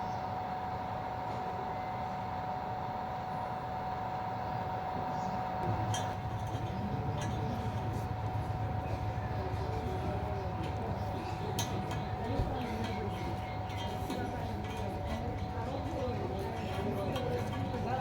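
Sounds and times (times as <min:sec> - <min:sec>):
steady machine hum: 0:00.0 - 0:18.0
light clinks: 0:05.9 - 0:08.5, 0:10.6 - 0:15.6.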